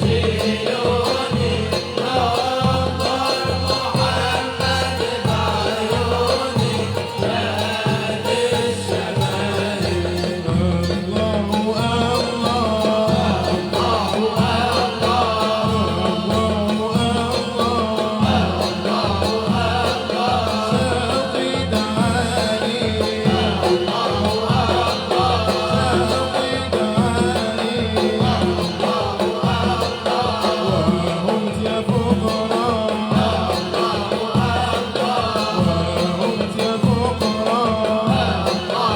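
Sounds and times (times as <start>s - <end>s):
dense drum rhythm: 0.0s - 38.9s
group singing: 0.0s - 38.9s.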